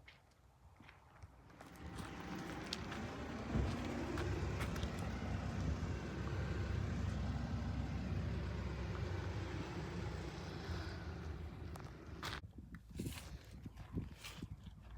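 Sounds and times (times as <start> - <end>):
car rumbling on the move: 1.5 - 12.4.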